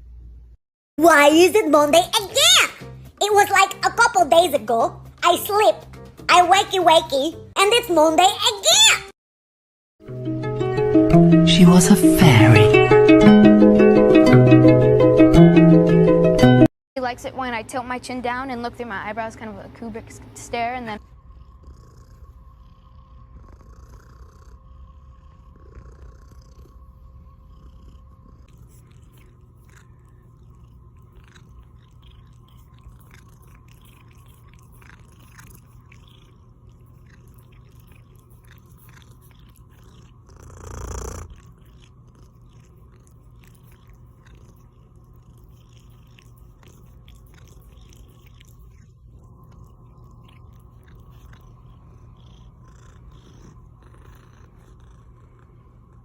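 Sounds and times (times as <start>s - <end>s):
cat purring: 19.2s - 56.0s.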